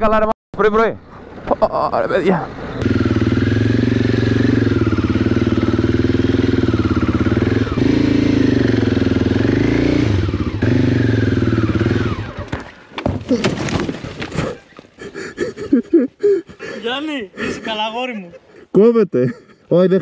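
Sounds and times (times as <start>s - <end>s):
motorcycle engine under load: 2.5s - 14.8s.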